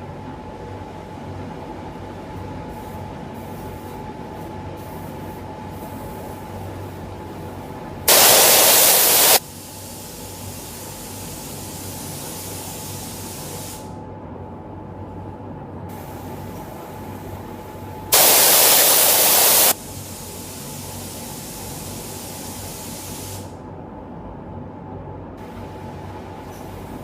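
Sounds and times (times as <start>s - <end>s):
workshop hiss: 2.3s - 14.0s, 15.9s - 23.6s, 25.4s - 27.0s
compressed air blast: 8.1s - 11.8s, 18.1s - 23.5s.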